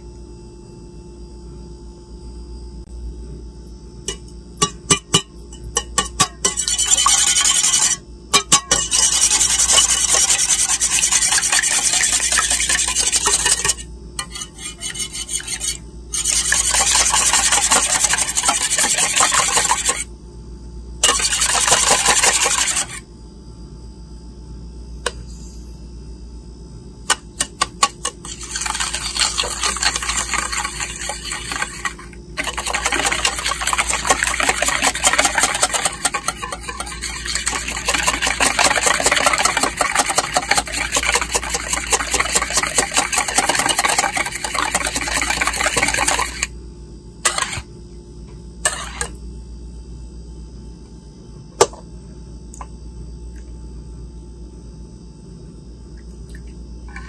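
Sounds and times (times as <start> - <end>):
wire whisk rattling in metal bowl: 4.6 - 20.0, 21.0 - 23.0, 27.4 - 46.5.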